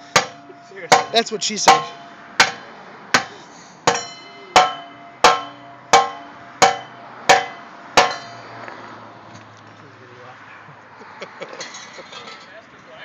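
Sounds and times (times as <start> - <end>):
sledgehammer striking metal: 0.0 - 8.5.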